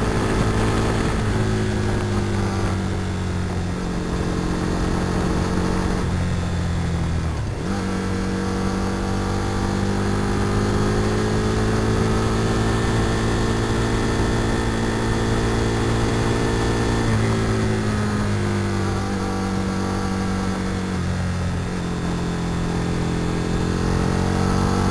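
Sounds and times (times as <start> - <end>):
wind rush on microphone: 0.0 - 9.0.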